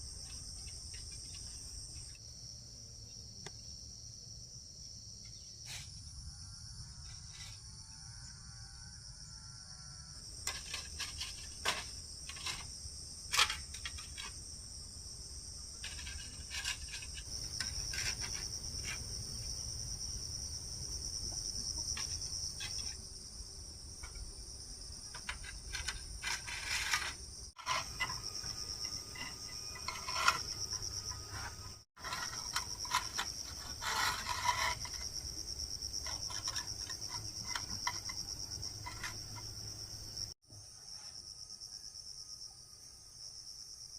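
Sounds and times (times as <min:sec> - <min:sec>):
insects chirring: 0:00.0 - 0:43.9
handwork clicks and scrapes: 0:10.4 - 0:14.5, 0:15.8 - 0:19.1, 0:21.8 - 0:23.0, 0:25.1 - 0:39.8.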